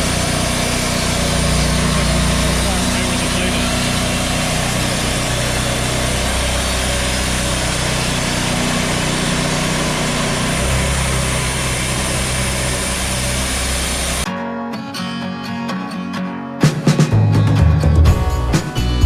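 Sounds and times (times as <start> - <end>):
sawmill engine running: 0.0 - 14.3
guitar music: 0.0 - 19.0.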